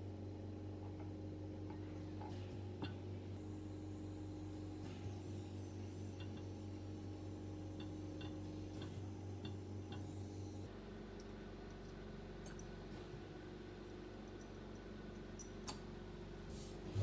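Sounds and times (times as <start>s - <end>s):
steady low hum: 0.0s - 10.7s, 16.0s - 17.0s
small metal clicks and ticks: 11.2s - 12.8s.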